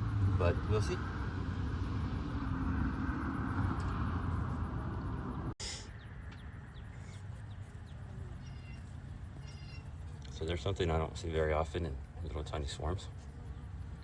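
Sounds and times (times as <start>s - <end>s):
faint chirps: 5.6s - 10.0s.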